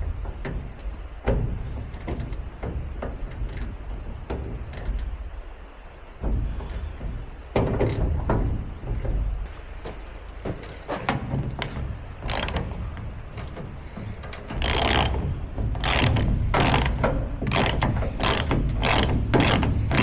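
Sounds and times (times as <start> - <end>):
metal ratchet clicking: 11.6 - 13.6, 14.3 - 20.0.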